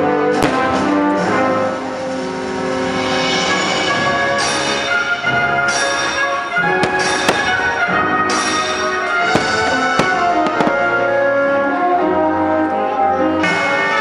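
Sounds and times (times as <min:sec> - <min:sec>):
orchestral music with brass: 0:00.0 - 0:14.0
firework shells bursting: 0:05.8 - 0:11.1.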